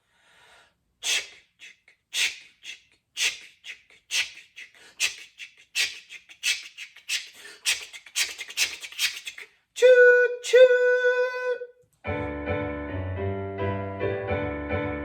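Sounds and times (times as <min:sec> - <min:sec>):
person imitating steam train chuffs: 0:01.0 - 0:10.8.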